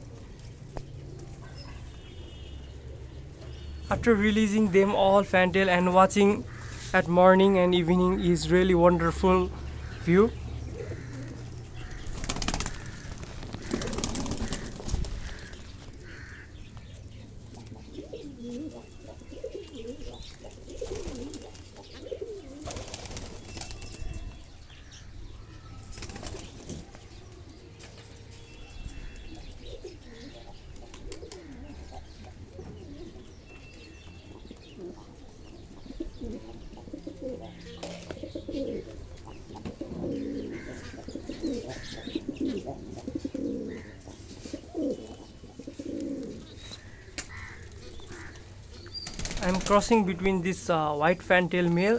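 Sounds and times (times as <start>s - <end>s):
pigeons cooing: 7.6s - 27.8s, 28.9s - 50.0s
wings flapping: 11.0s - 15.7s, 20.8s - 21.7s, 22.6s - 24.0s, 25.9s - 26.8s, 49.0s - 50.0s.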